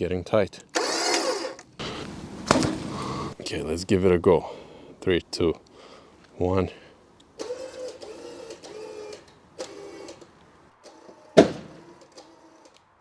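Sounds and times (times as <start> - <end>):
electric winch motor whining: 0.8 - 1.6, 7.4 - 12.8
sharp loud click: 11.4 - 12.0.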